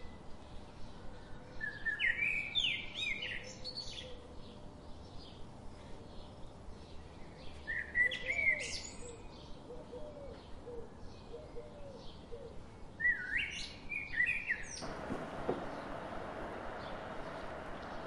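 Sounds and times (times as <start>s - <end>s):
birds chirping: 14.2s - 18.0s
faint low bird calls: 14.8s - 18.0s
steady rushing noise: 14.8s - 18.0s.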